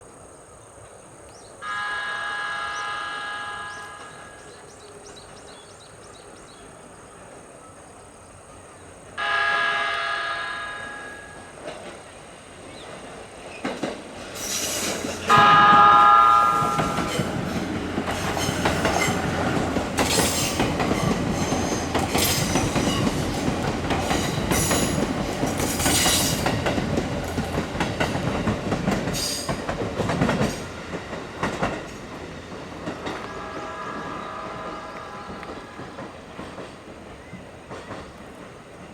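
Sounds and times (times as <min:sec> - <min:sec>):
electric train horn: 0:01.6 - 0:04.8, 0:09.2 - 0:11.6, 0:15.2 - 0:19.5, 0:33.0 - 0:36.3
train wheels clattering over rail joints: 0:11.6 - 0:33.6.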